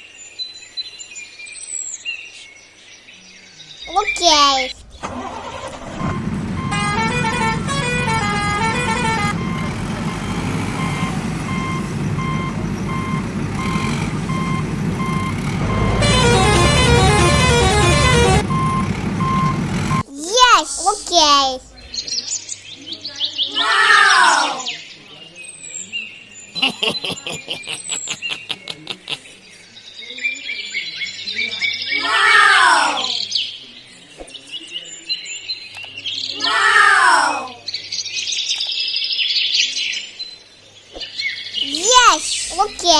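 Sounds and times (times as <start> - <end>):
electronic engine rumble: 4.8 - 20.0
short electronic tune: 15.6 - 18.8.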